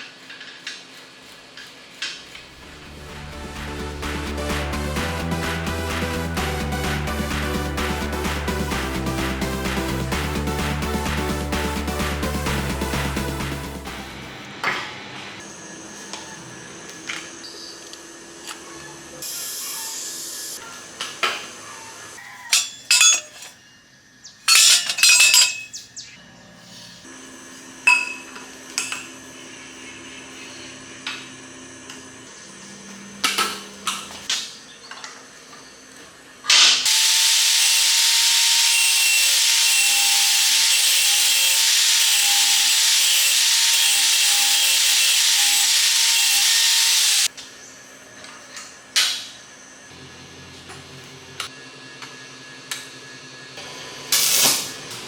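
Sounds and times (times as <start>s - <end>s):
power tool running with hiss: 0.0s - 23.5s, 26.6s - 55.0s
metal parts and tools tapping: 22.5s - 23.6s, 24.5s - 25.8s, 27.9s - 29.1s.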